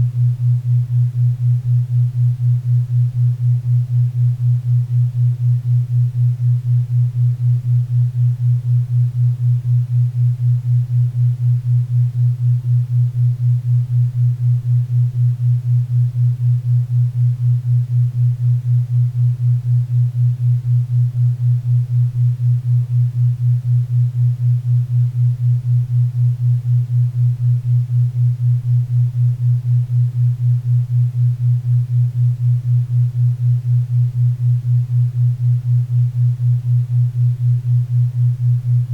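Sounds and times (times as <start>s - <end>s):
pulsing low tone: 15.2s - 38.9s.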